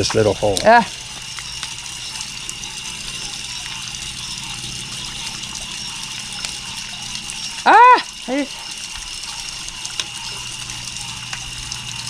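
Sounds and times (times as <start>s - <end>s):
water trickling: 0.0s - 12.0s
faint ticks: 0.5s - 12.0s.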